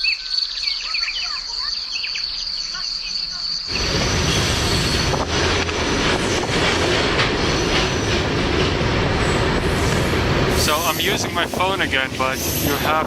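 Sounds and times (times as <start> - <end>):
moving train rumble: 2.6 - 13.0
wheels clacking over rails: 3.7 - 13.0.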